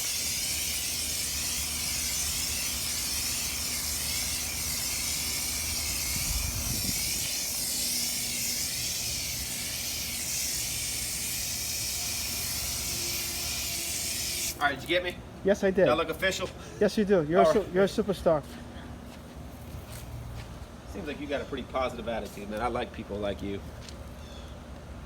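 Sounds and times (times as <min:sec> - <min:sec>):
pressure washer spraying water: 0:00.0 - 0:14.6.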